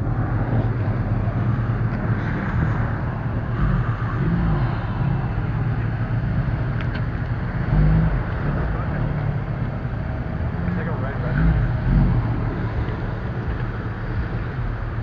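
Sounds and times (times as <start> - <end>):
car engines idling: 0.0 - 15.0
faint voices: 8.0 - 14.9.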